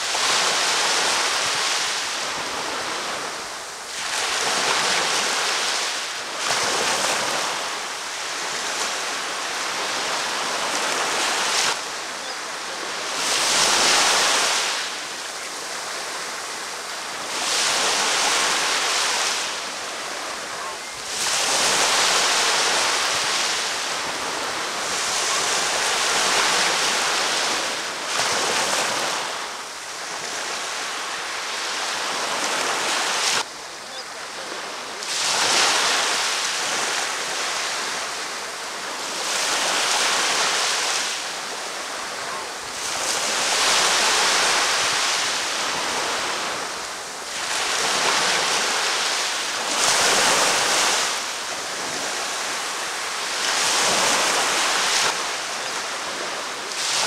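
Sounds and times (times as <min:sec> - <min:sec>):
ocean waves breaking on beach: 0:00.0 - 0:57.0.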